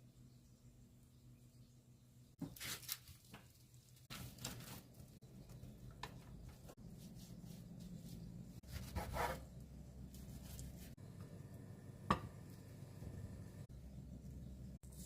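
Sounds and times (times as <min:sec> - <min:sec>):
low steady hum: 0:04.9 - 0:15.0.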